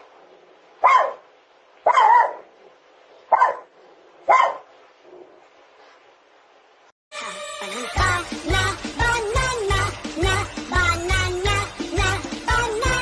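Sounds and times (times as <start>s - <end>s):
dog barking: 0.8s - 2.5s, 3.3s - 5.4s.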